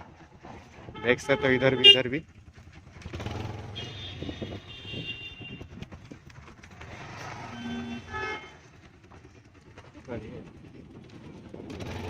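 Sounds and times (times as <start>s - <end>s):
street traffic: 0.0s - 12.0s
vehicle horns: 0.9s - 2.2s, 3.6s - 5.8s, 7.4s - 8.8s
knocks and clatter: 4.2s - 12.0s.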